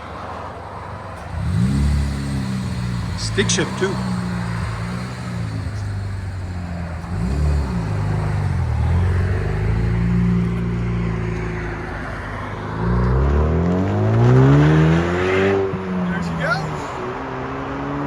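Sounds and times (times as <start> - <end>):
car exhaust revving and accelerating: 0.0 - 18.0.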